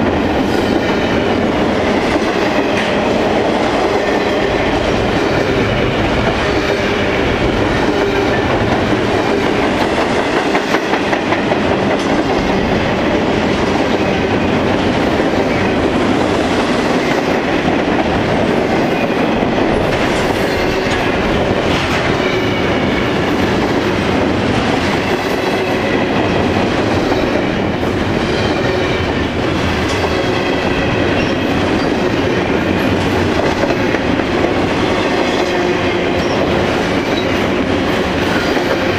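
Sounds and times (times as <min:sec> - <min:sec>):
freight train wheels clattering: 0:00.0 - 0:38.9.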